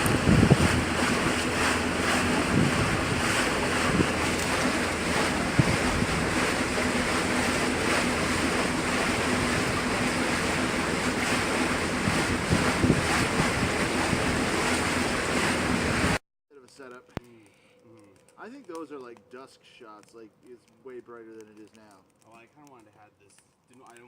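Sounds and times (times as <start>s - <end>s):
steady low hum: 0.0s - 16.2s
water noise: 0.0s - 16.2s
wind rushing over microphone: 0.0s - 16.2s.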